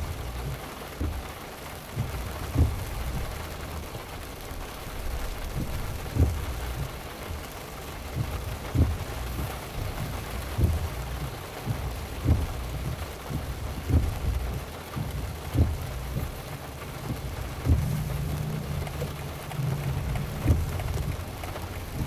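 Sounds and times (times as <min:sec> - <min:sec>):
heavy rain on moving car: 0:00.0 - 0:22.0
low thump: 0:17.1 - 0:21.2.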